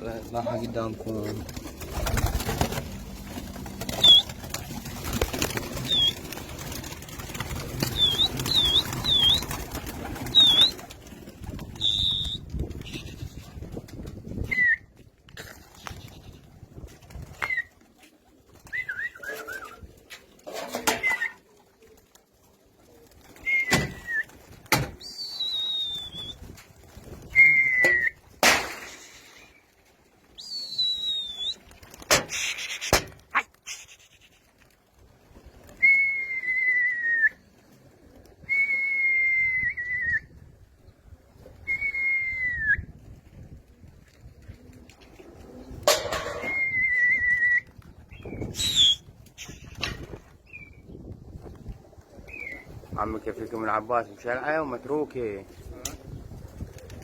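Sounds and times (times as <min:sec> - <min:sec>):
pigeon wings flapping: 0:00.0 - 0:40.1, 0:41.4 - 0:53.9, 0:55.4 - 0:57.0
high bird chirps: 0:07.9 - 0:09.5.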